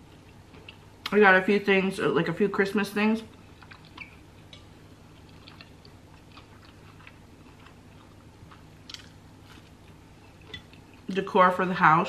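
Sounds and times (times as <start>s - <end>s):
soft chewing: 0.0s - 1.2s, 3.3s - 11.4s.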